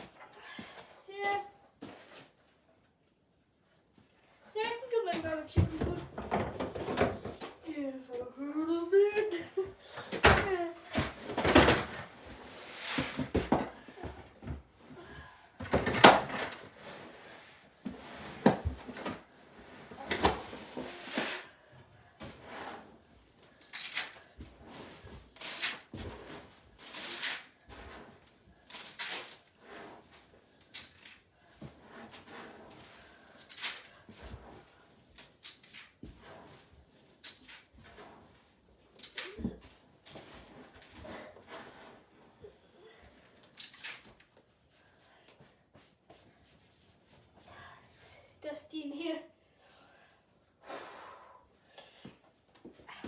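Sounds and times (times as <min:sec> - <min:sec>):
objects knocking and clattering: 0:05.1 - 0:07.6, 0:10.0 - 0:12.4, 0:13.0 - 0:16.8.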